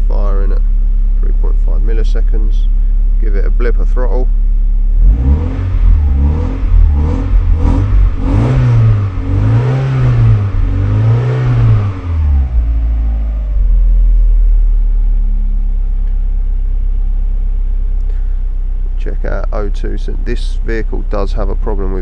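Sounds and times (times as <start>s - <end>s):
car engine idling: 0.0s - 22.0s
car engine revving: 0.0s - 22.0s.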